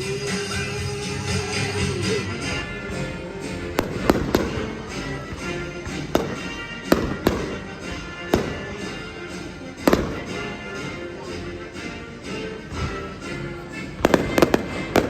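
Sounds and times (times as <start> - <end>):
music playing: 0.0 - 15.0
fireworks bangs: 2.8 - 10.9, 14.0 - 15.0.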